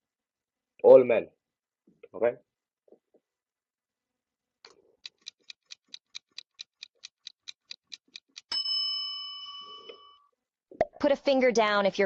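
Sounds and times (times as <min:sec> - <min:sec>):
clock ticking quickly: 0:05.0 - 0:08.5
bright bell ding: 0:08.5 - 0:10.3.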